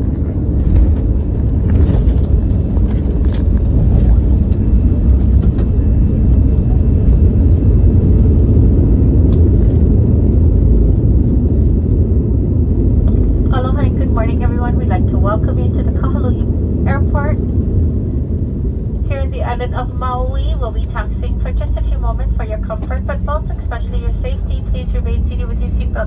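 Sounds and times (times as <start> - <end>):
deep airliner cabin rumble: 0.0 - 26.0
light cabin rattles: 0.5 - 7.1.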